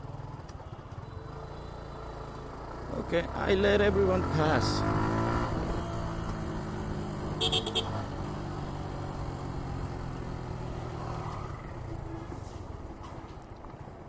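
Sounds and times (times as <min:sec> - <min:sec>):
road noise: 0:00.0 - 0:14.0
motorcycle engine running: 0:04.0 - 0:10.6.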